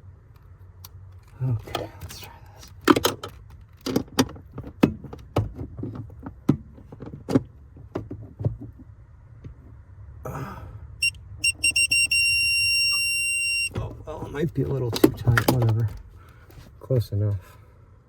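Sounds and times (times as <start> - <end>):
high electronic beeps: 11.0 - 13.8.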